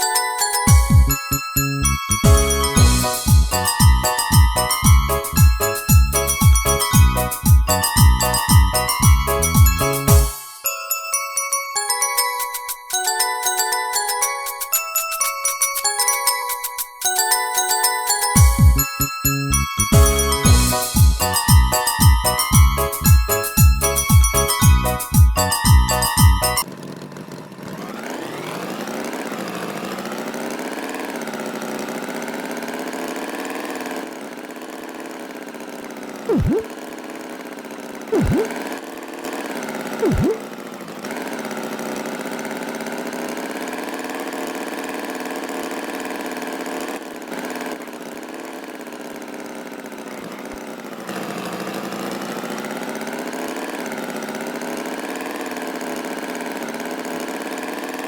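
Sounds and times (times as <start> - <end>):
cartoon tractor engine: 0.0 - 10.8, 11.8 - 58.0
short sounds dropping in pitch: 36.3 - 36.7, 38.2 - 38.6, 40.0 - 40.5.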